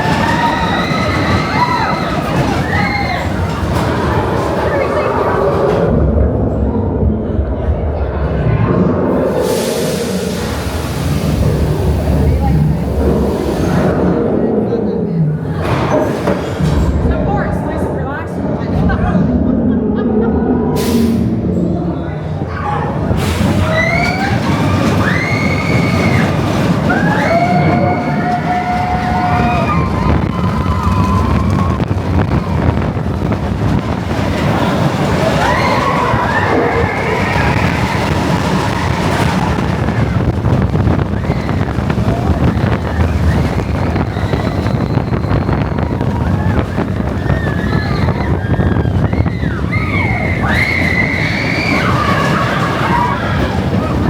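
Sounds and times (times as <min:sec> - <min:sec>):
high squeals: 0:00.0 - 0:05.7, 0:22.5 - 0:54.0
roller coaster rumbling on track: 0:00.0 - 0:54.0
wind buffeting microphone: 0:00.0 - 0:54.0.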